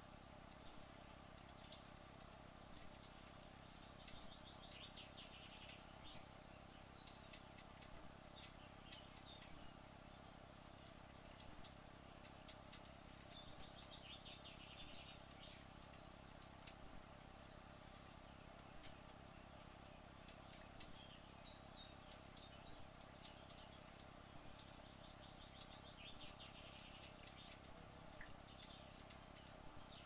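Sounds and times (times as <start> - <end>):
faint ticks: 0.0 - 10.0, 10.7 - 30.0
faint background hum: 0.0 - 30.0.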